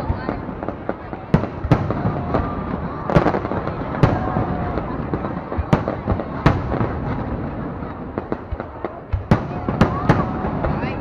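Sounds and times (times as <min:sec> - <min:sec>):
fireworks crackle: 0:00.0 - 0:11.0.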